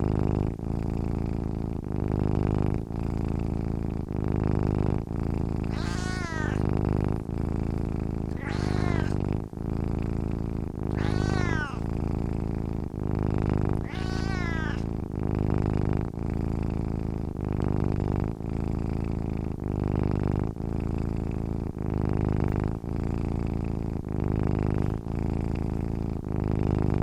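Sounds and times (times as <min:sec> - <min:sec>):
cat purring: 0:00.0 - 0:27.0
cat meow: 0:05.7 - 0:06.7, 0:08.3 - 0:09.2, 0:10.9 - 0:11.9, 0:13.8 - 0:14.9.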